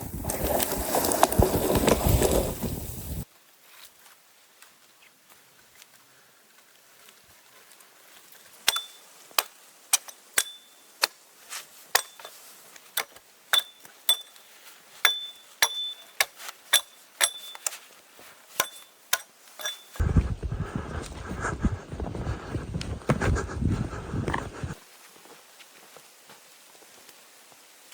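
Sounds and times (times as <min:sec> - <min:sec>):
metal tool tapping with ring: 0:10.0 - 0:10.8, 0:13.6 - 0:14.4, 0:15.0 - 0:16.1, 0:16.8 - 0:17.8, 0:18.6 - 0:20.0
loud steady rushing noise: 0:20.0 - 0:24.8.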